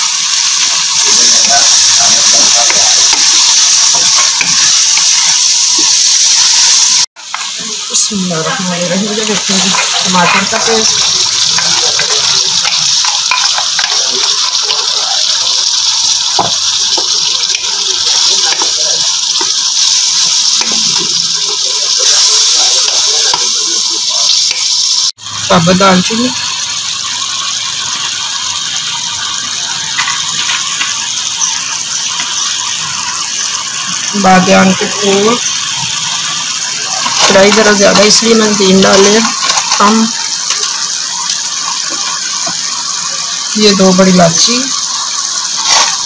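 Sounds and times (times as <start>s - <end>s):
oil sizzling in a pan: 0.0s - 46.0s
wooden spoon scraping a pan: 8.4s - 11.0s.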